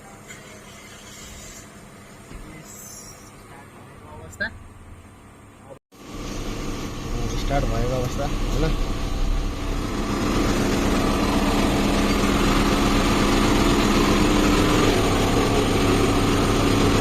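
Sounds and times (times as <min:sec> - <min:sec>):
car engine idling: 0:06.1 - 0:17.0.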